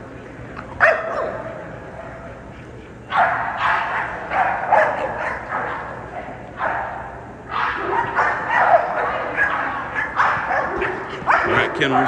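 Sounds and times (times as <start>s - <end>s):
dog barking: 0.8s - 1.5s, 3.1s - 6.0s, 6.6s - 12.0s.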